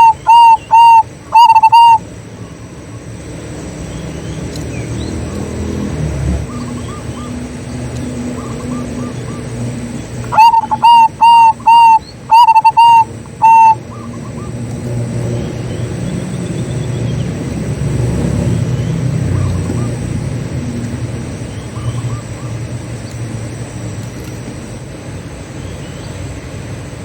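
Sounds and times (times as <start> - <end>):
dove cooing: 0.0 - 2.1, 8.1 - 14.7
distant doves cooing: 0.0 - 3.3, 5.0 - 23.0.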